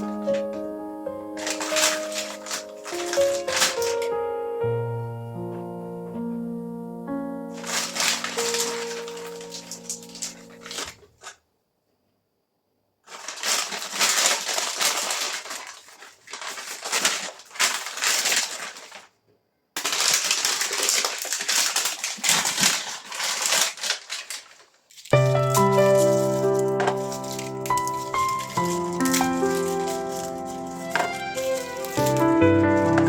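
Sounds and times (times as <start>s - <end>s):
dense crunching crackling noise: 1.3s - 4.1s, 7.5s - 11.4s, 13.0s - 19.1s, 19.8s - 33.0s.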